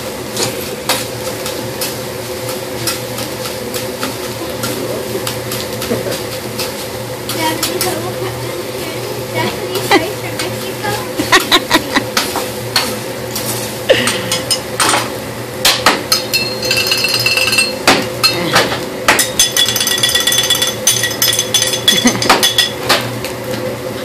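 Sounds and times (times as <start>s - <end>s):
spatula and knife clacking on griddle: 0.4s - 8.2s, 9.4s - 23.1s.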